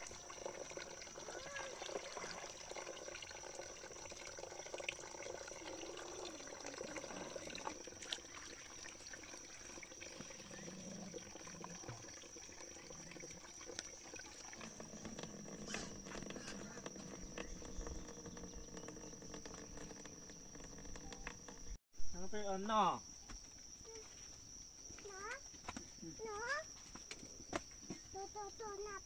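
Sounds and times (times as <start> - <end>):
trickling and pouring water: 0.0 - 21.8.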